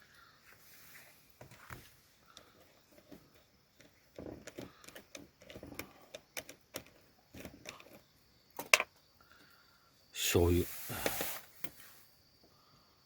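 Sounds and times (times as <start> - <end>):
small objects clicking and rustling: 1.4 - 9.0.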